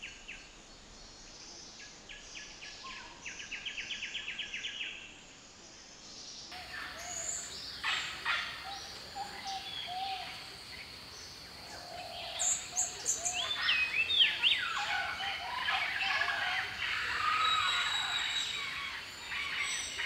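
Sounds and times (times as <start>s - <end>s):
high insect drone: 6.6s - 20.0s.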